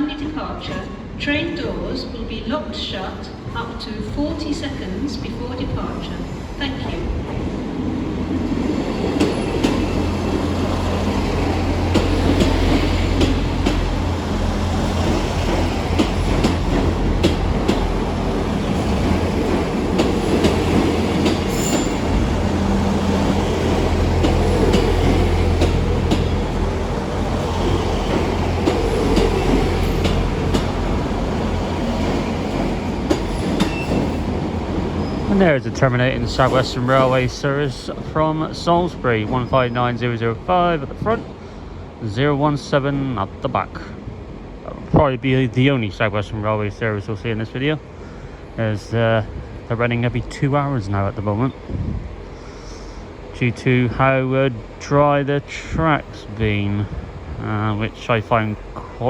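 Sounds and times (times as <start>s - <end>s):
train wheels rumbling: 0.0s - 59.0s
wheels clicking over rail joints: 9.1s - 34.4s
wheel squeal: 21.5s - 22.1s.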